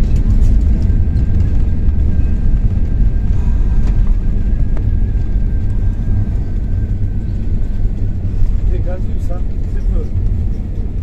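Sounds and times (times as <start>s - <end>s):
aircraft cabin rumble: 0.0s - 11.0s.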